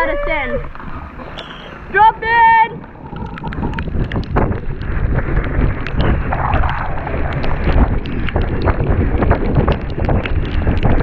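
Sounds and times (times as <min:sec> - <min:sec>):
wind buffeting microphone: 0:00.0 - 0:11.0
bike clicks and rattles: 0:03.1 - 0:11.0.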